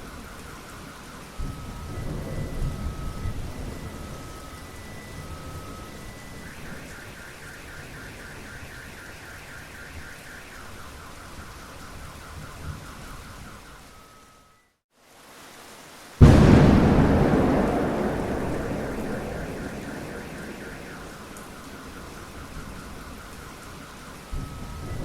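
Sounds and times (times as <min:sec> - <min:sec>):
steady rain: 0:00.0 - 0:25.0
thunder rumble: 0:16.2 - 0:23.2
car alarm beeping and warbling: 0:16.3 - 0:23.4.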